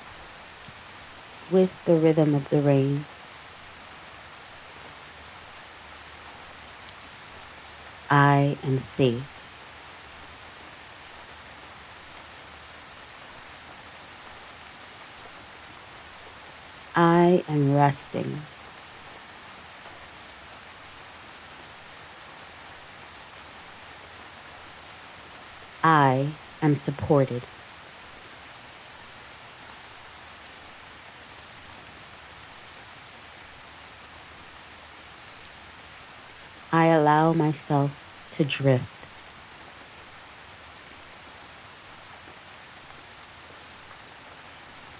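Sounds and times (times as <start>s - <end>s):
gentle rain hiss: 0.0s - 44.9s
raindrop ticks: 6.7s - 8.1s, 35.3s - 36.6s.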